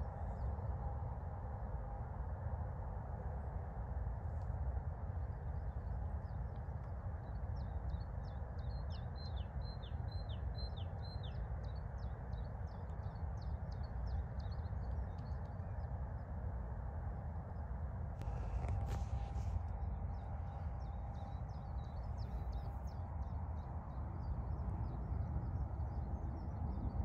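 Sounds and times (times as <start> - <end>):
low background rumble: 0.0 - 27.0
small songbird chirping: 7.6 - 15.9.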